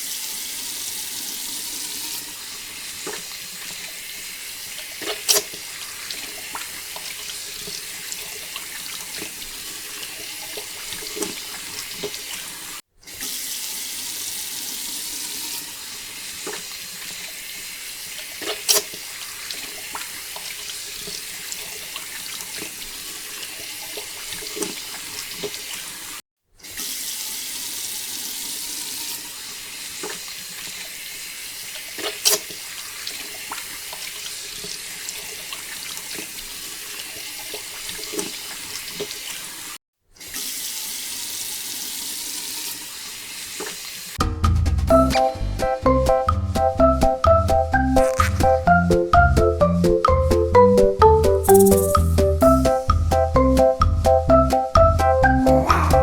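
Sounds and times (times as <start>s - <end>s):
water pouring from pump outlet: 0.0s - 44.2s.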